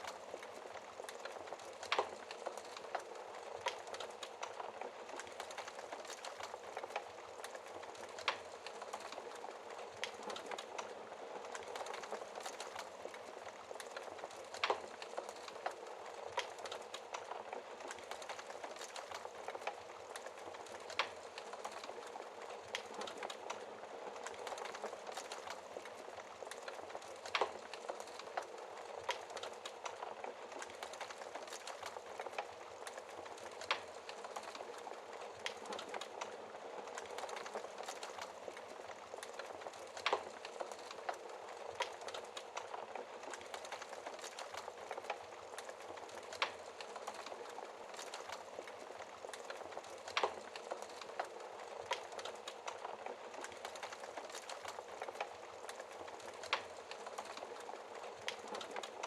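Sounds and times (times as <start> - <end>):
burning logs popping: 0.0 - 59.0
wood fire crackling: 0.0 - 59.0.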